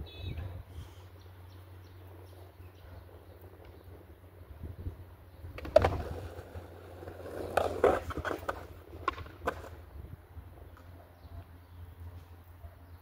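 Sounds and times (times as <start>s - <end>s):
skateboard wheels rumbling: 1.6s - 12.4s
skateboard clacks: 5.5s - 9.9s.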